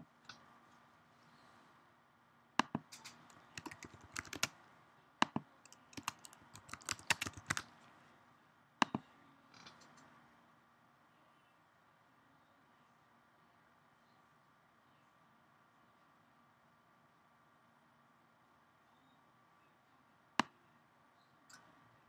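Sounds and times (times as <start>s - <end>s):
keyboard key clicks: 2.6s - 4.5s, 5.2s - 7.6s.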